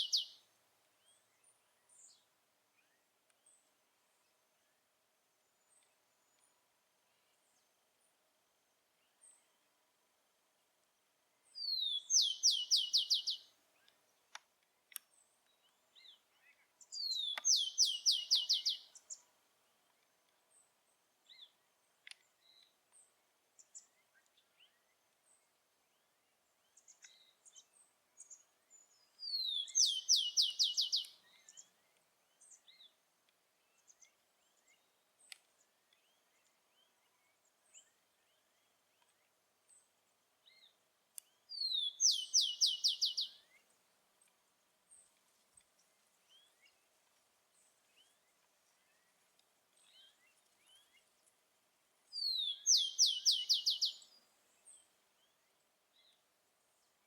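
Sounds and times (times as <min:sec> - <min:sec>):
sparrow singing: 0:00.0 - 0:00.4, 0:11.6 - 0:13.9, 0:15.6 - 0:19.3, 0:26.8 - 0:31.7, 0:40.5 - 0:43.6, 0:52.1 - 0:54.8
faint bird chirps: 0:00.0 - 0:07.7, 0:11.4 - 0:14.1, 0:15.0 - 0:19.3, 0:20.0 - 0:33.0, 0:33.6 - 0:43.8, 0:52.1 - 0:57.0.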